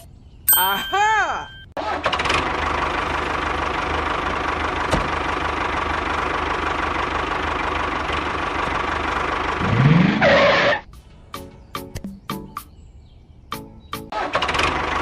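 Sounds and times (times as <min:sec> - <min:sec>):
engine running with low pulsing: 0:01.9 - 0:11.3, 0:14.2 - 0:15.0.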